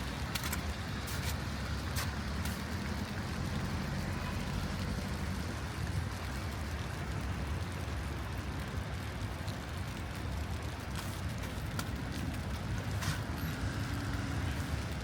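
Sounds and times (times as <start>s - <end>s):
footsteps: 0.0s - 2.7s
passing vehicle rumble: 0.0s - 8.4s, 11.5s - 15.0s.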